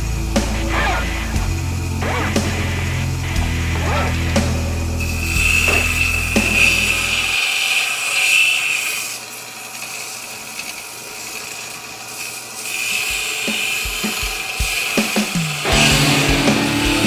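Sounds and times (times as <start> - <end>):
tool scraping steel: 5.0 - 14.2.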